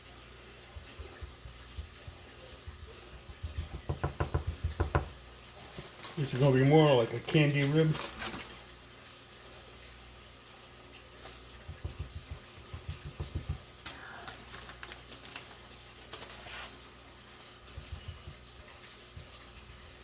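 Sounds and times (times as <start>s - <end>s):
hands patting meat: 0.7s - 5.1s, 11.6s - 13.7s.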